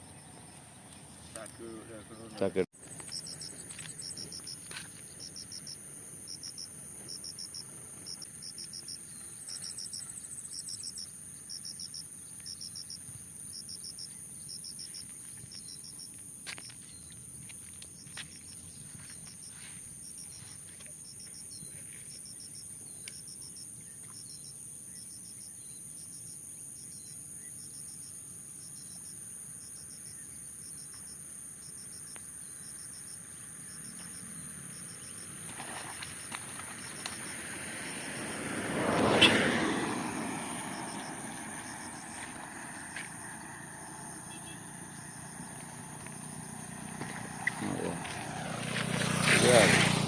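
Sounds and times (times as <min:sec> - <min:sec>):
high insect drone: 0:00.0 - 0:50.0
short insect chirps: 0:29.8 - 0:38.4
vehicle passing: 0:34.2 - 0:50.0.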